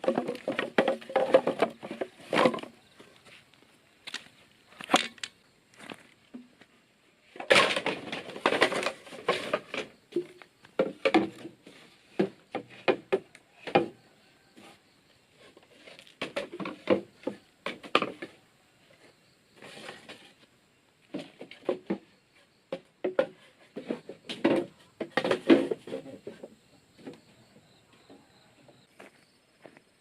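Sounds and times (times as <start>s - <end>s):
wooden knocks and clatters: 0.0s - 2.8s, 7.4s - 14.0s, 15.8s - 18.4s, 21.1s - 27.2s.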